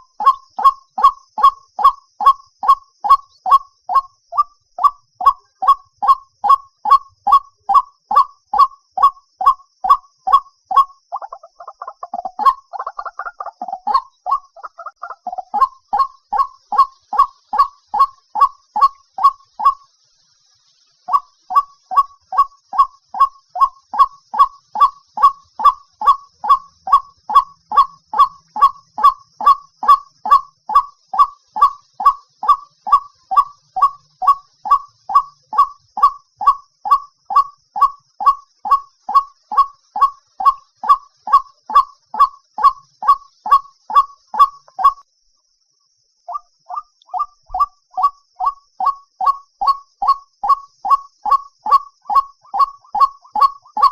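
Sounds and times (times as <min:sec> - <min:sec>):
waterhen calling: 0:00.0 - 0:19.9, 0:21.0 - 0:45.0, 0:46.3 - 0:53.9.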